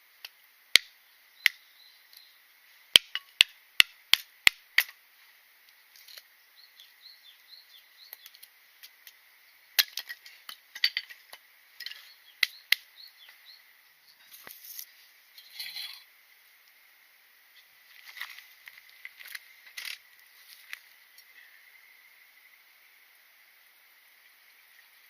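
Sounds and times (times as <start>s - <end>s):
faint bird chirps: 0.9s - 2.5s, 5.8s - 8.8s, 11.8s - 16.7s, 20.2s - 22.9s
sharp snaps and cracks: 18.0s - 21.3s.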